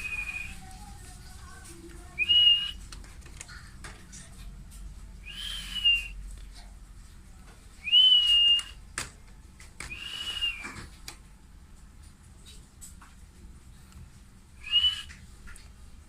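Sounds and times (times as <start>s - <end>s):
parrot whistled calls: 2.2s - 2.8s, 5.2s - 6.2s, 7.8s - 8.8s, 9.9s - 10.8s, 14.6s - 15.2s.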